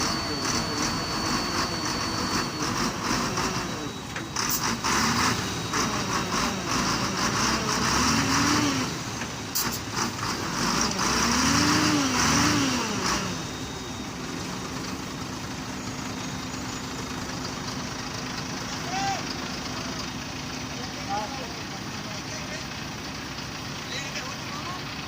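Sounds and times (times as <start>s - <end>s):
heavy diesel engine revving: 0.0s - 25.0s.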